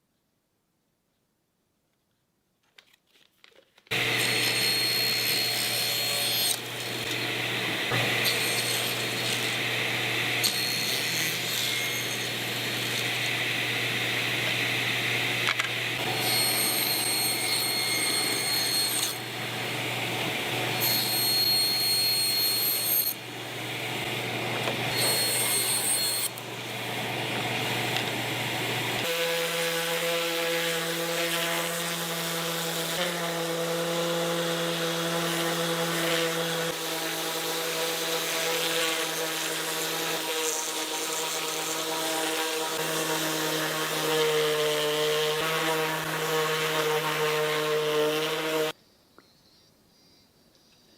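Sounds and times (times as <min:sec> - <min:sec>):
high-pitched cutting noise: 0:03.9 - 0:13.5, 0:16.0 - 0:19.5, 0:24.9 - 0:26.5
power tool motor hum: 0:03.9 - 0:48.8.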